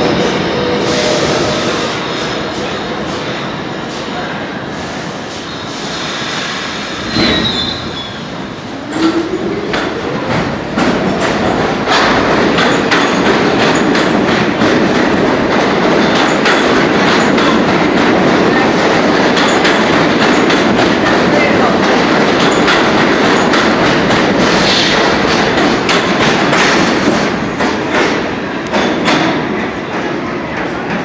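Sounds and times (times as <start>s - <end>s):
high wheel squeal: 7.0s - 8.3s.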